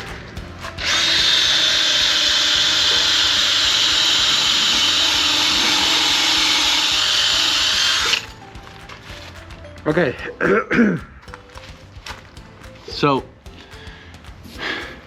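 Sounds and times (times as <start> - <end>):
power tool running: 0.8 - 8.3.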